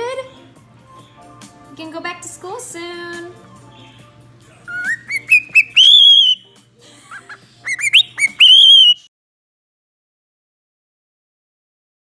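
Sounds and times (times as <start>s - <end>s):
parrot whistling: 4.6s - 6.5s, 7.1s - 9.1s.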